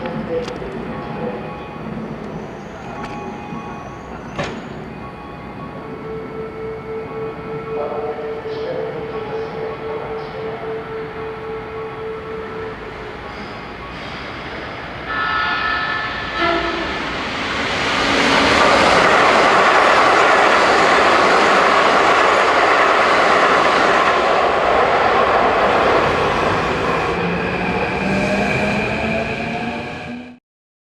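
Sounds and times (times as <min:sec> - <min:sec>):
train wheels rumbling on rail: 0:13.4 - 0:29.9
train horn: 0:15.1 - 0:17.2.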